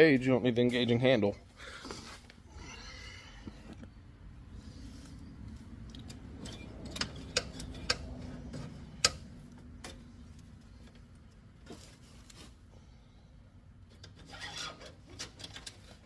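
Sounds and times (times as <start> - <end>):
metallic clicks of hand tools: 5.8 - 10.0.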